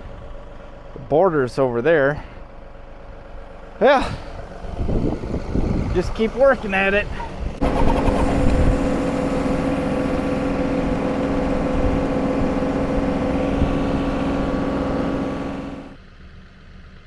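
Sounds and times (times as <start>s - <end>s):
tractor engine running hard: 2.5s - 17.0s
stump grinder grinding: 4.3s - 16.0s.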